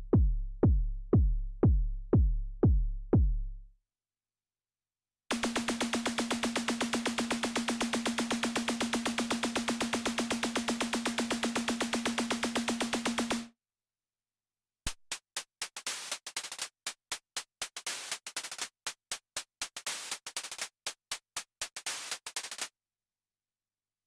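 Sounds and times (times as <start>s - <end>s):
synthesizer pulse over held tone: 5.3s - 13.4s
noisy synthesizer percussive hits: 5.3s - 13.5s.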